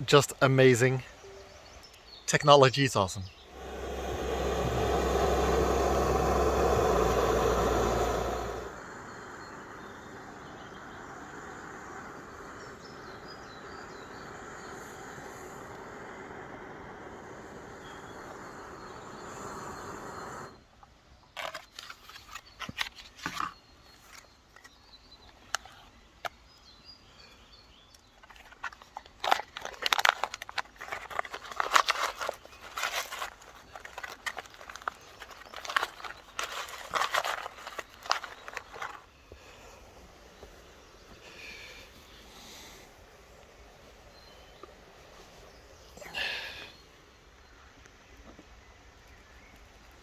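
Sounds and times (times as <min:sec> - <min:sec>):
outdoor hiss: 0:00.0 - 0:20.8, 0:31.7 - 0:50.0
packaging crinkling and rustling: 0:28.2 - 0:39.1.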